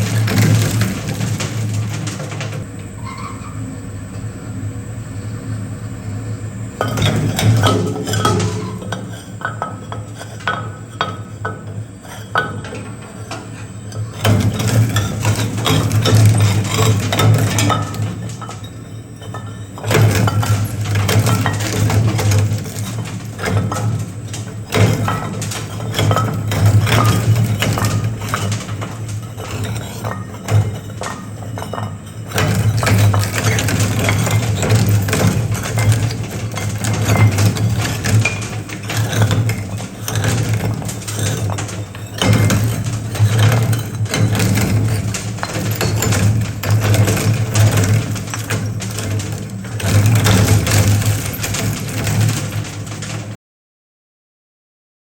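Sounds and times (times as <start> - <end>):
shredder humming: 0.0 - 3.0, 3.6 - 53.2
material cracking and crunching: 14.2 - 53.4.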